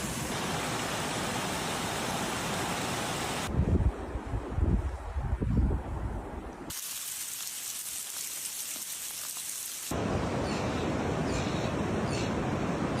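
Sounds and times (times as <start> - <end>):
rain hissing: 6.7 - 10.0.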